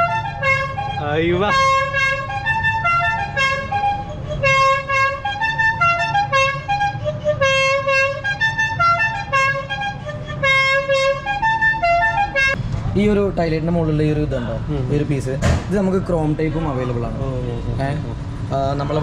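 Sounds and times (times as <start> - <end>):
musical car horn tune: 0.0 - 12.6.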